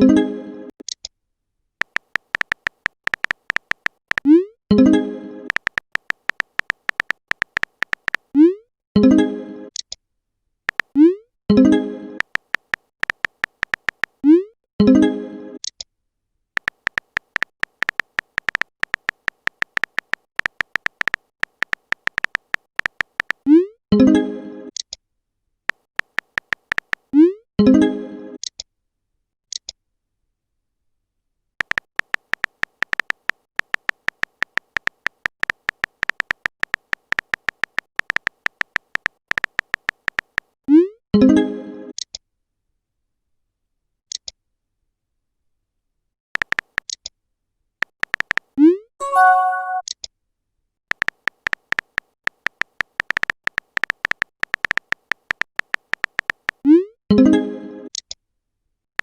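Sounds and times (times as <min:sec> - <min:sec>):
phone keyboard typing clicks: 0:01.8 - 0:04.4, 0:05.5 - 0:08.3, 0:10.7 - 0:11.0, 0:12.2 - 0:14.2, 0:16.6 - 0:23.5, 0:25.7 - 0:27.1, 0:31.6 - 0:40.6, 0:46.4 - 0:47.0, 0:47.8 - 0:50.0, 0:50.9 - 0:56.7
chime message alert: 0:49.0 - 0:49.8.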